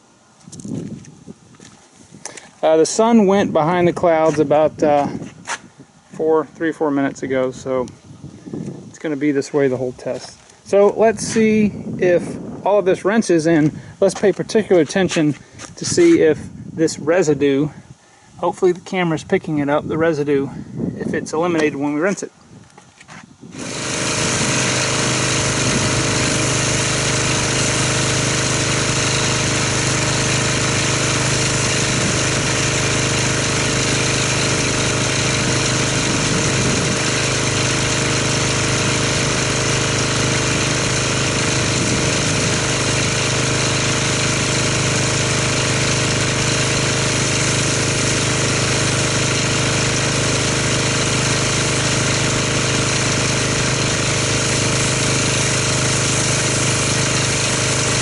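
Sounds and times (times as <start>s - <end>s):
pressure washer spraying: 23.5s - 58.0s.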